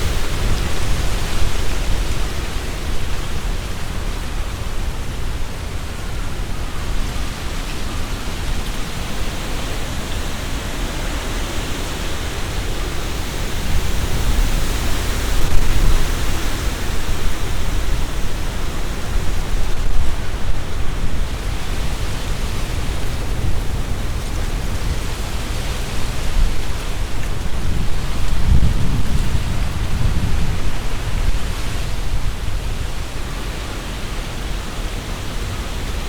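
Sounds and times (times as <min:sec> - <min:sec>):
wind rustling tree leaves: 0:00.0 - 0:36.0.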